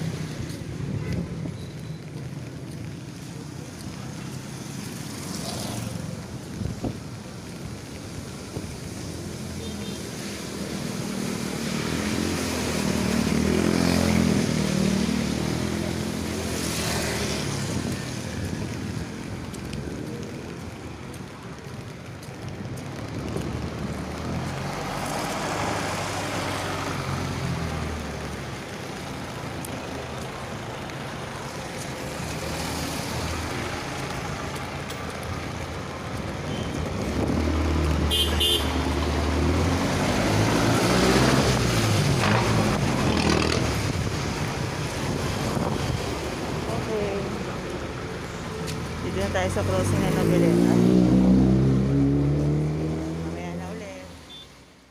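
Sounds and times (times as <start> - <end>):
vehicle engines passing: 0.0 - 54.9
car horn beep: 38.1 - 38.8, 54.3 - 54.6.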